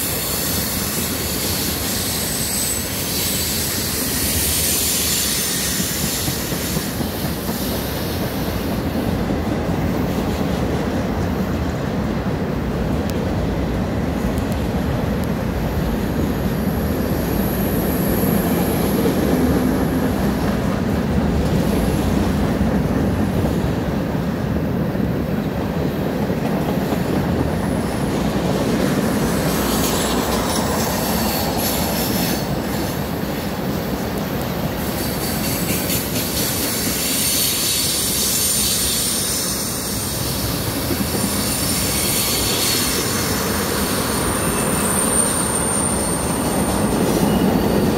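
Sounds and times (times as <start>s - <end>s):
high wheel squeal: 0.0s - 7.9s, 29.2s - 33.2s, 34.9s - 47.9s
train wheels rumbling on rail: 0.0s - 47.9s.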